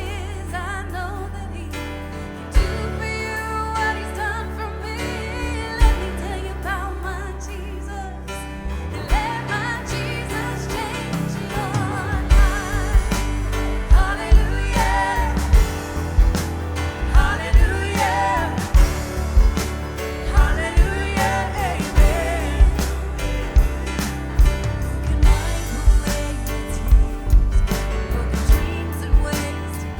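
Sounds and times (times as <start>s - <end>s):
people singing: 0.0s - 29.9s
drums: 2.5s - 3.5s, 5.7s - 6.3s, 8.9s - 29.9s
worship band playing: 8.8s - 29.9s.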